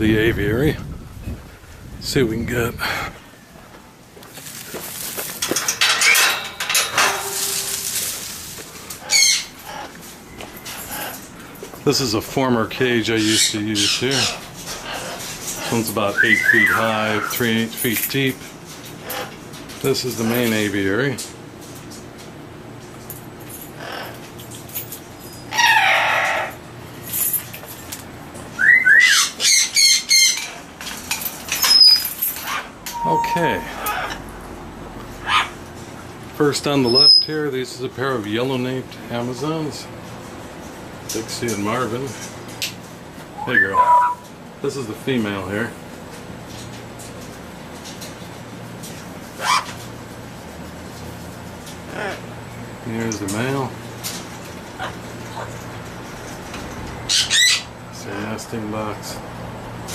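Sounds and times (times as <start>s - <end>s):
parrots flapping wings: 4.4s - 9.9s
parrot squawk: 9.0s - 10.0s, 13.2s - 17.3s, 23.8s - 24.2s, 25.5s - 26.6s, 28.6s - 30.6s, 31.6s - 34.2s, 35.2s - 35.6s, 36.9s - 37.3s, 43.4s - 44.3s, 49.4s - 49.8s, 51.9s - 52.3s, 57.1s - 57.7s.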